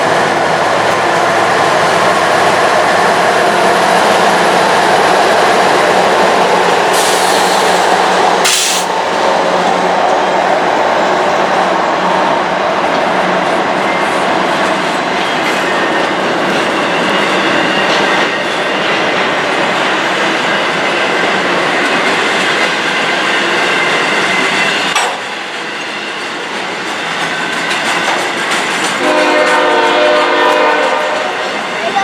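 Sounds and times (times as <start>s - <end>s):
train wheels on rail: 0.0s - 32.0s
locomotive air horn chord: 29.0s - 31.4s.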